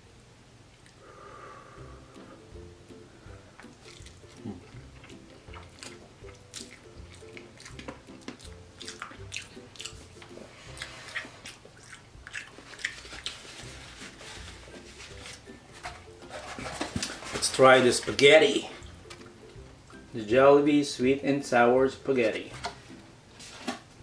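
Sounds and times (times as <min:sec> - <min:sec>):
wet mouth clicks and smacks: 0:03.6 - 0:13.4
chewing noodles: 0:03.6 - 0:15.5.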